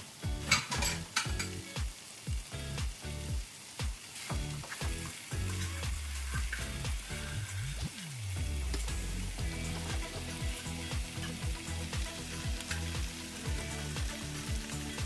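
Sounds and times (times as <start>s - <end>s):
background music with bass beat: 0.0s - 15.0s
steaks sizzling in skillet: 0.0s - 15.0s
metal tongs clicking on pan: 0.5s - 1.6s, 5.1s - 6.7s, 12.6s - 13.0s.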